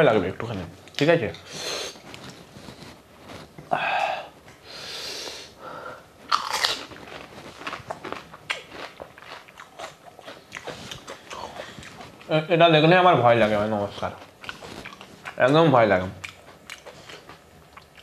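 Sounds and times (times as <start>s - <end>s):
chewing crackles: 6.2s - 12.5s, 13.4s - 18.0s
crunching of crisp shell: 6.3s - 12.3s.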